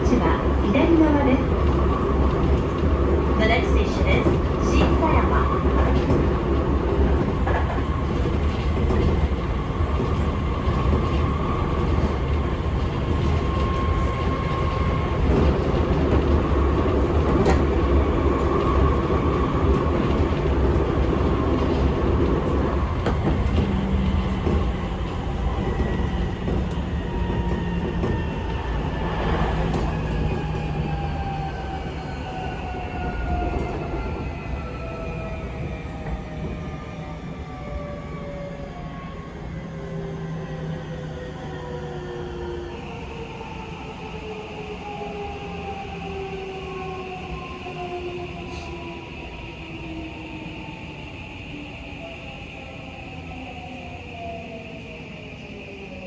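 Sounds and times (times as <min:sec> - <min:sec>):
train wheels rumbling on rail: 0:00.0 - 0:56.0
rail joint clicks: 0:00.1 - 0:36.6.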